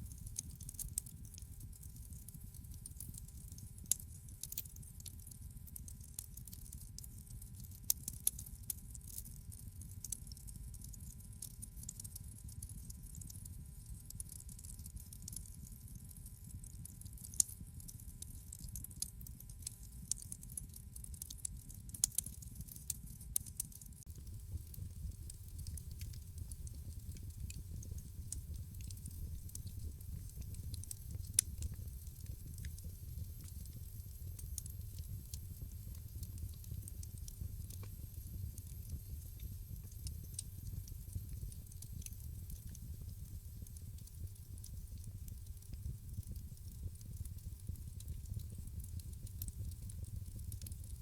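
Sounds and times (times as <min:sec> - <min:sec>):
wood fire crackling: 0:00.0 - 0:10.5, 0:20.0 - 0:20.7, 0:24.0 - 0:51.0.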